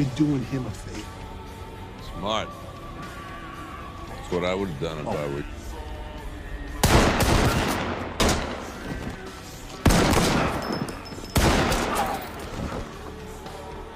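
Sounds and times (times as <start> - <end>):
echoing gunshots: 6.8 - 8.8, 9.8 - 12.4.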